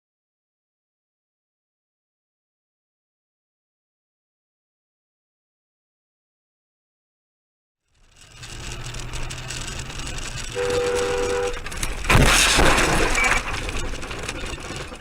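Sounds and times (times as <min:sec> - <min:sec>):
road noise: 0:07.9 - 0:15.0
vehicle collision crash: 0:08.2 - 0:15.0
vehicle horn: 0:10.4 - 0:11.7.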